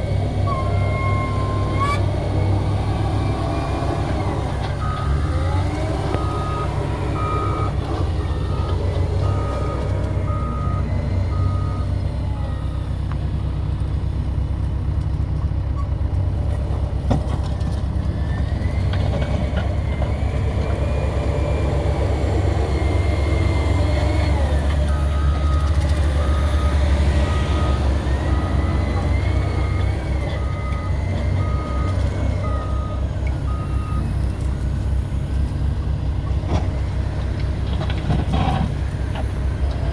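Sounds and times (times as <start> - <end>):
diesel engine rumbling: 0.0 - 39.9
reversing alarm beeping: 0.3 - 13.0, 20.6 - 34.1.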